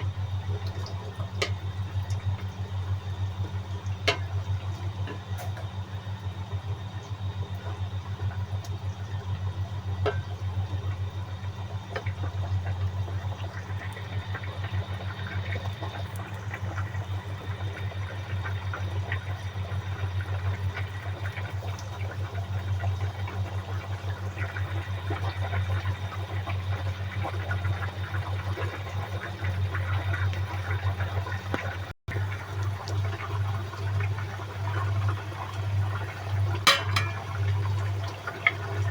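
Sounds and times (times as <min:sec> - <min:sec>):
pot bubbling on stove: 0:00.0 - 0:38.9
low hum: 0:36.6 - 0:37.8.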